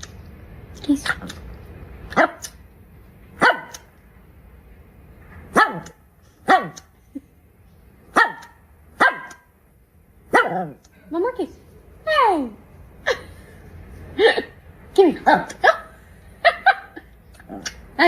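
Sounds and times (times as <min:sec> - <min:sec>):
dog barking: 0:02.1 - 0:02.6, 0:03.4 - 0:03.9, 0:05.5 - 0:06.9, 0:08.1 - 0:09.5, 0:10.3 - 0:10.8, 0:15.3 - 0:17.0.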